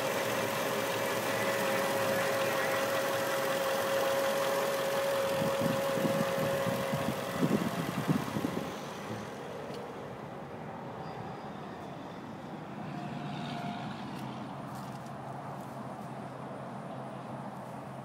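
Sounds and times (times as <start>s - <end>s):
car engine idling: 0.0s - 10.5s.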